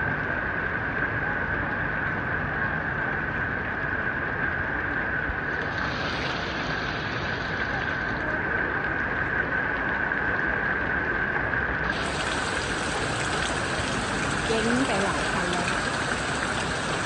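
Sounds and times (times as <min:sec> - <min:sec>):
heavy rain: 0:05.3 - 0:10.7, 0:11.8 - 0:17.0
floodwater flowing: 0:05.5 - 0:09.2, 0:11.8 - 0:17.0.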